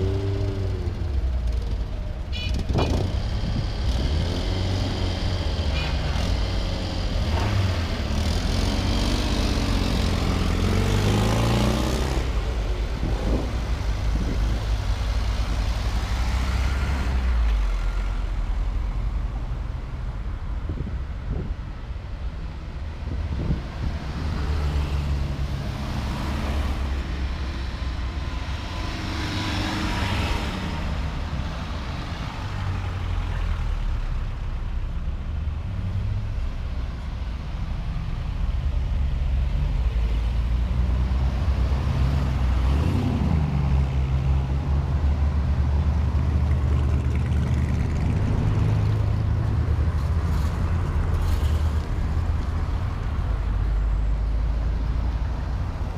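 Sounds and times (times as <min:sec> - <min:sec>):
vehicle passing by: 0:06.5 - 0:18.1, 0:40.6 - 0:54.9.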